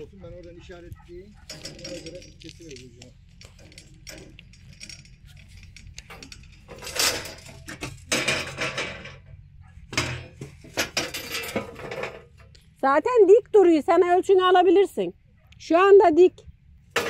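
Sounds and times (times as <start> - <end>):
sheet metal rattling and knocking: 0.0 - 12.5.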